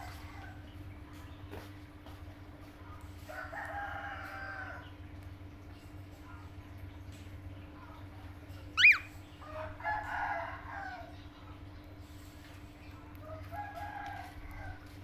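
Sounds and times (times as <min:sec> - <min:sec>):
rooster crowing: 0:03.3 - 0:04.8, 0:08.8 - 0:11.1, 0:13.2 - 0:15.0
faint bird call: 0:08.7 - 0:09.2
bird whistle: 0:08.8 - 0:09.2.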